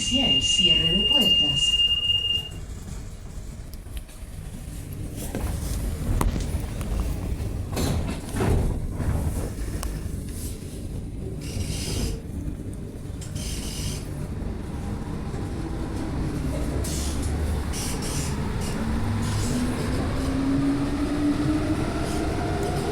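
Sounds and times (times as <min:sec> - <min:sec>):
train running gear rumble: 0:00.0 - 0:22.9.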